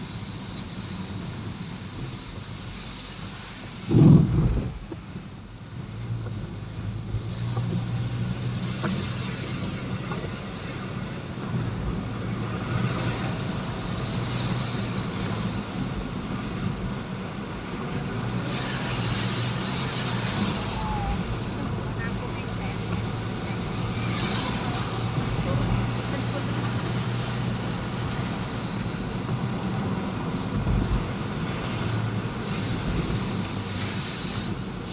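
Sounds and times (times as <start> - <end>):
road and air noise hiss: 0.0 - 34.9
vehicle engine hum: 0.0 - 34.9.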